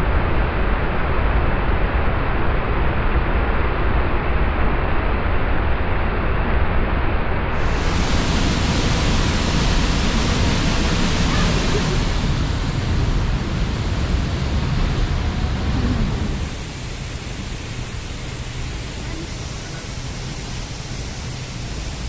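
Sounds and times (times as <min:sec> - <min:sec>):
waterfall rushing: 0:07.6 - 0:22.0.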